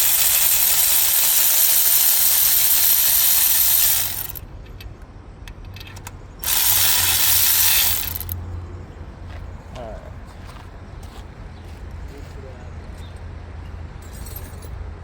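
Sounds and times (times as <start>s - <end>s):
ratchet wrench clicking: 0.0s - 4.4s, 6.4s - 8.4s.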